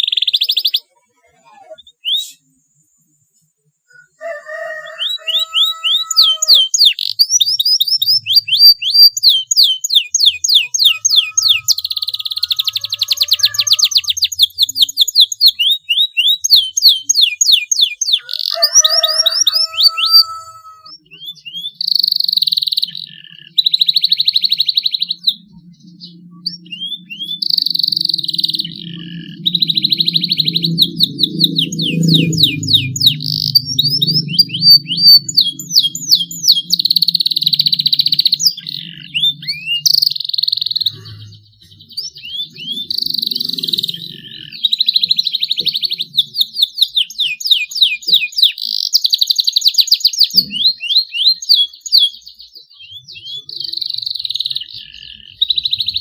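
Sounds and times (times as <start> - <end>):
canary singing with trills: 0.0 - 56.0
low rumble: 25.2 - 40.1.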